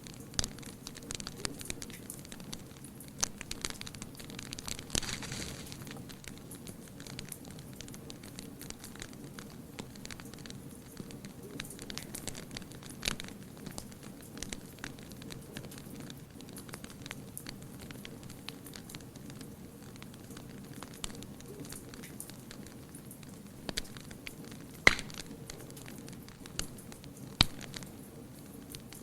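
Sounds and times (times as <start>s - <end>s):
low rumble of flame: 0.0s - 29.0s
wood fire crackling and popping: 0.0s - 29.0s.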